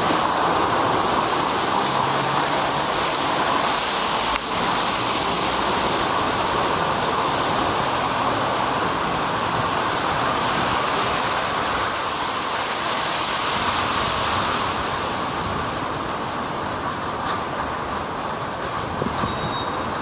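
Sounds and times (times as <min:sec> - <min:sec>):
wet road noise: 0:00.0 - 0:20.0
wind over microphone: 0:18.6 - 0:19.6.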